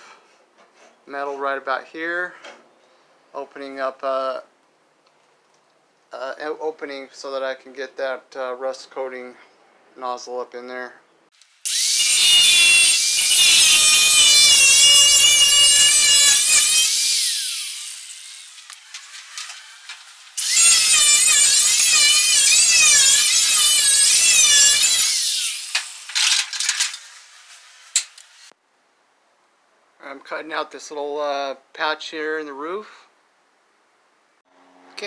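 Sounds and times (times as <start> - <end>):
cutoff wheel whining through metal: 11.7 - 28.5.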